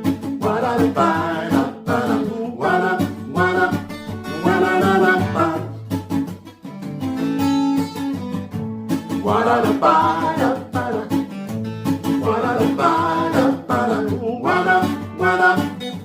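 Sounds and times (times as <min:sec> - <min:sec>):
acoustic guitar strumming: 0:00.0 - 0:16.0
person singing: 0:00.4 - 0:05.9, 0:09.1 - 0:11.4, 0:12.1 - 0:16.0.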